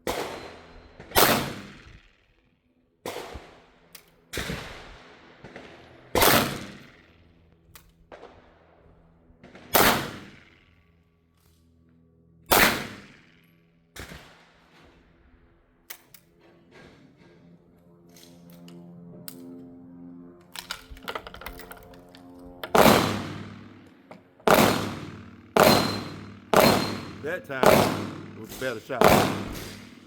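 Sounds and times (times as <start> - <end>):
loud gunshots with ringing echo: 0.0 - 1.9, 4.5 - 6.9, 9.4 - 10.5, 12.5 - 13.1, 22.7 - 23.8, 24.4 - 30.0
quieter gunshots: 0.0 - 2.1, 3.0 - 7.2, 8.1 - 10.7, 12.5 - 15.1, 22.7 - 30.0.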